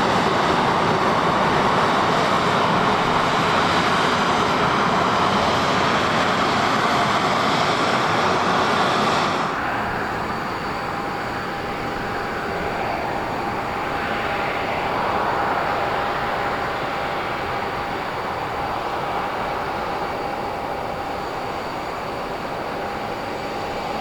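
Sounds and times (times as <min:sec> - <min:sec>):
jet engines roaring: 0:00.0 - 0:24.0
faint steady whine: 0:09.4 - 0:24.0.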